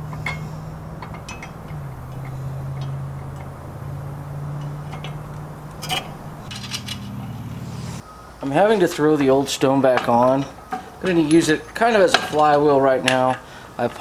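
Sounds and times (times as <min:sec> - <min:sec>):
light clicks and clinks: 0:00.0 - 0:07.4
steady low hum: 0:00.0 - 0:09.5.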